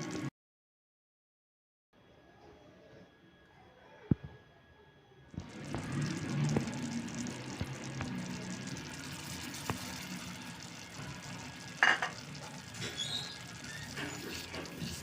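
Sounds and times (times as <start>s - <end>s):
faint sizzle: 5.0s - 15.0s
utensil stirring in a pan: 5.6s - 15.0s.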